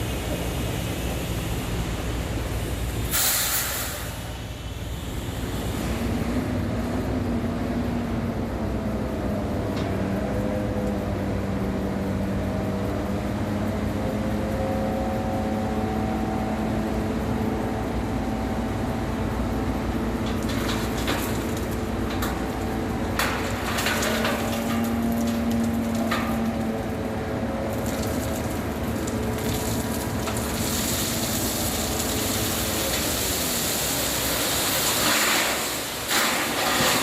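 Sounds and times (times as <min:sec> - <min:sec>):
diesel truck engine running: 0:00.0 - 0:37.0
short loud hiss: 0:03.1 - 0:04.2.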